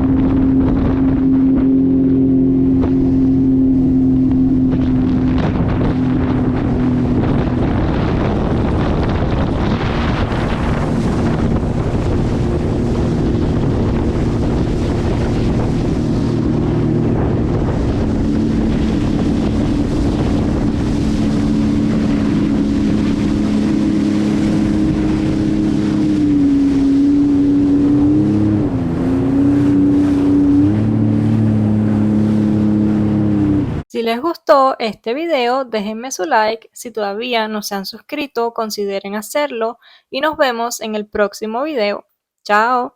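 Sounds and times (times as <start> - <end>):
wind buffeting microphone: 0.0 - 33.9
jet ski engine running: 0.0 - 34.2.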